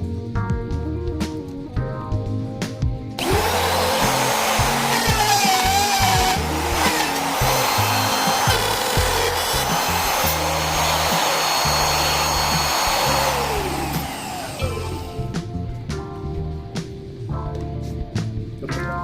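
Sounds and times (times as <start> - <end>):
background music: 0.0 - 19.0
electric router whining: 3.2 - 15.4.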